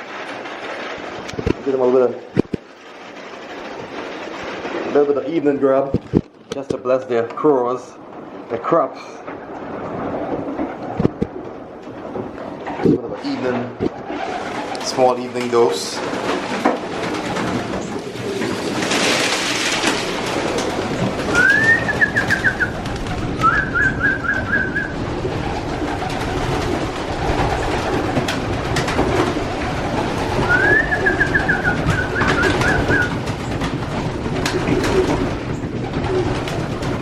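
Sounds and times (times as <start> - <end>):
pigeons cooing: 20.3 - 33.6, 34.4 - 37.0.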